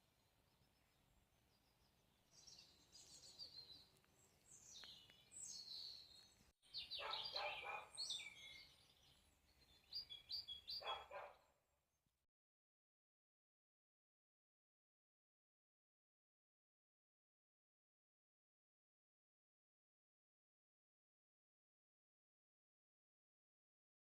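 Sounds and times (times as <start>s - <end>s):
high bird chirps: 1.8s - 11.4s.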